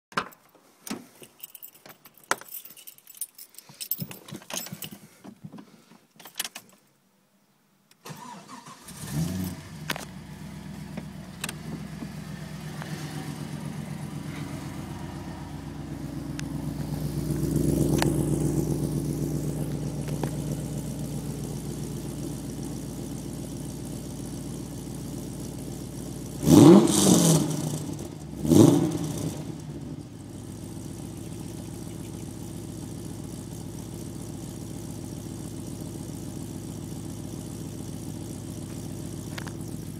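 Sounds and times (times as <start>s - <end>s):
car engine starting and idling: 7.9s - 39.9s.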